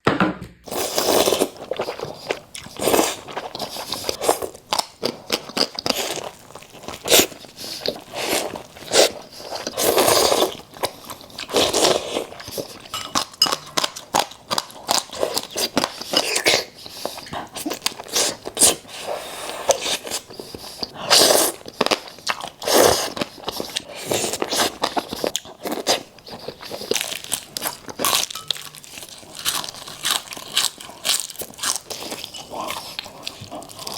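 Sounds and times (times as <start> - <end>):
person chewing crunchy food: 0.6 - 33.9.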